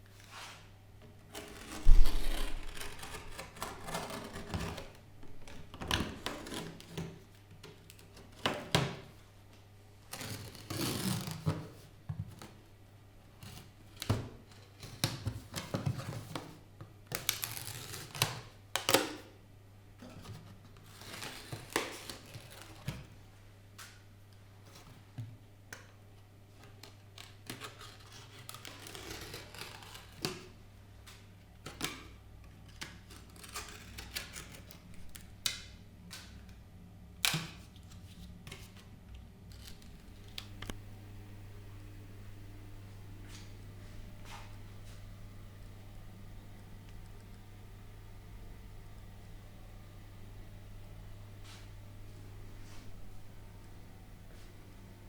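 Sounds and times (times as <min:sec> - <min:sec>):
steady low hum: 0:38.3 - 0:55.0.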